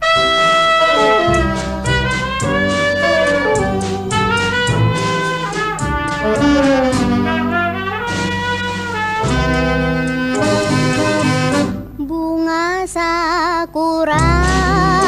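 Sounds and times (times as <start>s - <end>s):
band accompaniment: 0.0s - 12.0s, 14.2s - 15.0s
brass section playing held chords: 0.0s - 12.0s.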